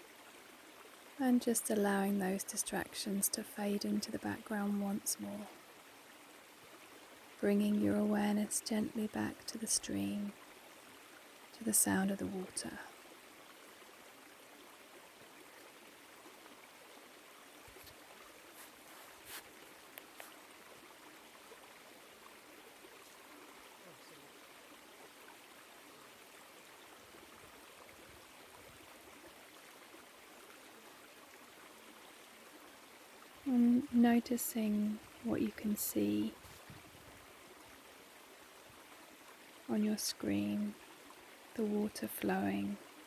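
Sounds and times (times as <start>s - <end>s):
stream flowing: 0.0s - 43.0s.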